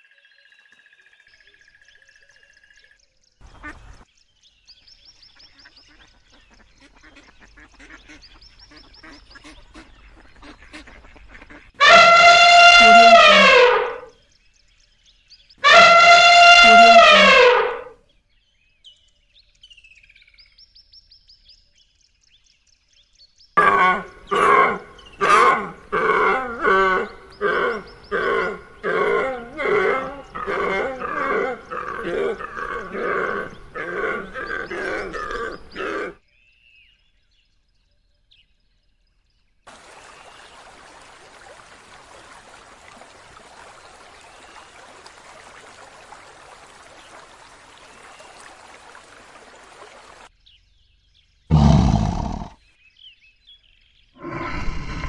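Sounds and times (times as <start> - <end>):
hiss of pond water: 6.5 - 14.2, 39.7 - 50.4, 51.5 - 52.6, 54.2 - 55.0
deer calling: 11.8 - 14.1, 15.6 - 17.9, 23.6 - 36.2
lioness deep call: 11.8 - 14.1, 15.6 - 17.9, 23.6 - 36.2, 51.5 - 52.6, 54.2 - 55.0.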